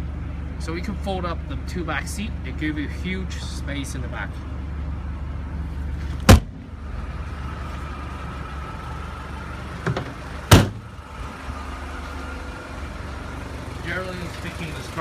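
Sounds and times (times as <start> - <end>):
low hum: 0.0 - 13.7
car seats latching clunks: 9.8 - 10.8.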